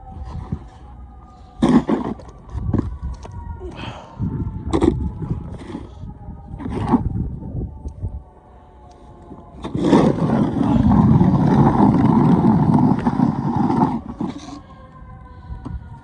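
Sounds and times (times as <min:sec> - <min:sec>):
snow shovel scraping pavement: 0:01.6 - 0:02.3, 0:09.6 - 0:14.6.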